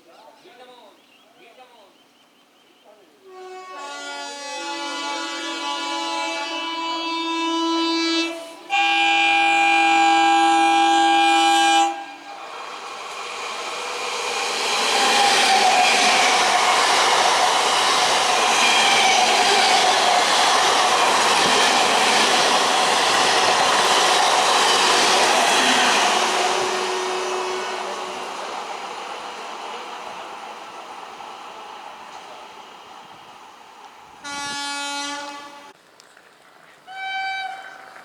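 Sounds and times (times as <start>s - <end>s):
train horn sounding: 3.2s - 12.4s, 14.6s - 28.8s, 34.2s - 35.8s, 36.9s - 37.9s
train passing at speed: 3.3s - 35.8s.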